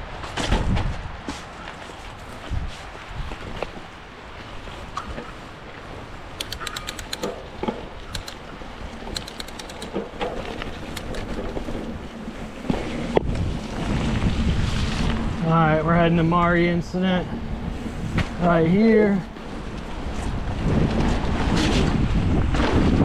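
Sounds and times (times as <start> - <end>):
rapid clicking: 6.4 - 7.4, 8.1 - 11.9
wind buffeting microphone: 8.1 - 16.6, 17.3 - 23.0.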